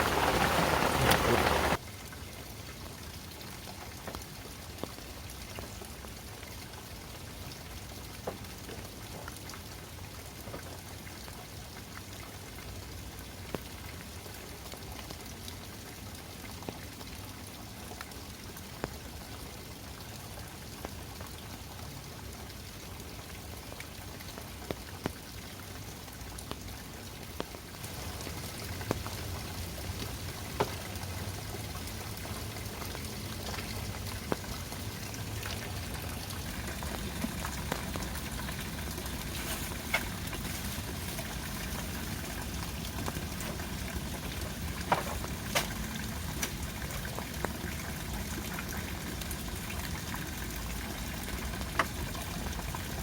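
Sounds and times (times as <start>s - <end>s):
heavy rain falling: 0.0s - 1.8s, 27.8s - 50.0s
raindrops striking nearby: 0.0s - 53.0s.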